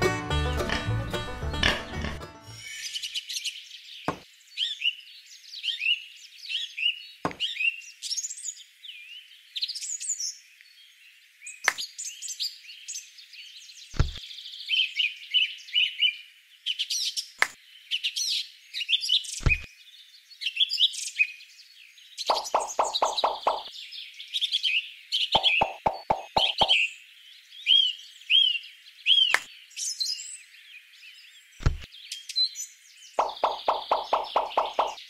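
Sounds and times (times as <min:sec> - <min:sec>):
small birds chirping and trilling: 0:00.7 - 0:35.0
objects set down knocking: 0:14.0 - 0:14.2.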